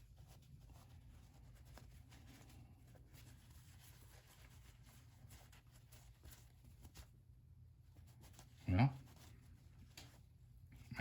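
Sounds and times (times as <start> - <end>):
low steady hum: 0.0 - 11.0
light scratching and taps: 8.1 - 10.2.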